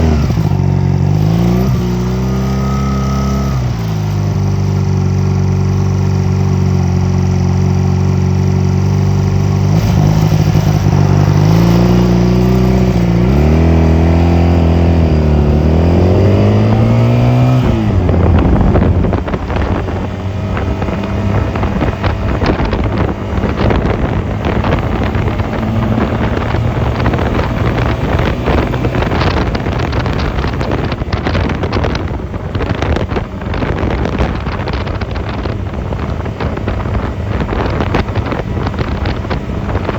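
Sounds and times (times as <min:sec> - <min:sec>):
motorcycle engine accelerating: 0:00.0 - 0:39.9
wind buffeting microphone: 0:08.7 - 0:39.9.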